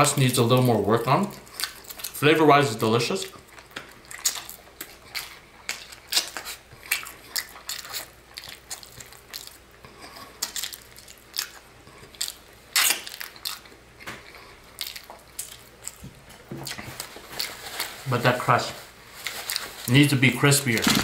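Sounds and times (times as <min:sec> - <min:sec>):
crunching and chewing: 0:00.0 - 0:18.3, 0:19.0 - 0:21.0
gnawing at a bone: 0:03.3 - 0:13.7.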